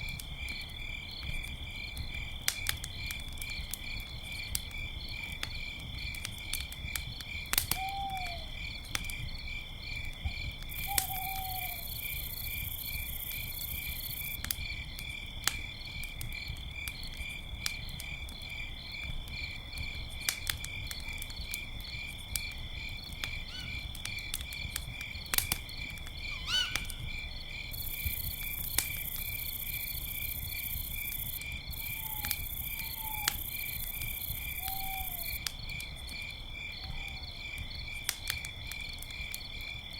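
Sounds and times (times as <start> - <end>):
campfire crackling and popping: 0.0 - 39.9
crickets chirping: 0.0 - 39.9
owl hooting: 7.8 - 8.5, 10.8 - 12.0, 26.3 - 27.0, 31.9 - 33.4, 34.6 - 35.4.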